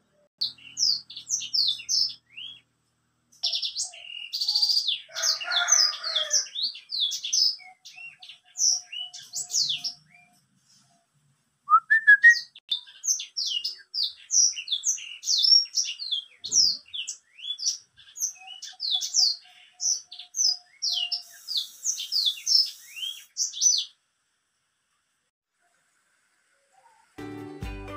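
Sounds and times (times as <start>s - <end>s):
canary singing rapid chirps and trills: 0.4s - 2.7s, 3.4s - 10.4s, 12.4s - 24.0s.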